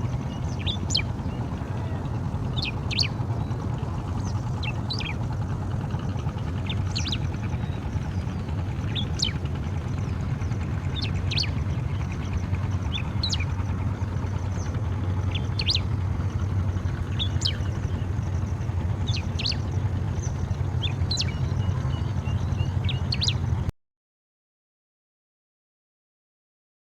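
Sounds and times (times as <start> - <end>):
bird calling sharp notes: 0.0 - 5.2, 10.8 - 18.3
low rumble: 0.0 - 23.7.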